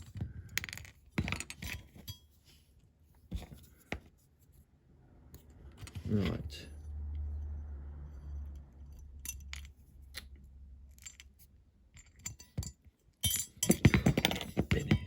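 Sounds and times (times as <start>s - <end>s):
small parts clicking and tapping: 0.0s - 2.2s, 8.3s - 15.0s.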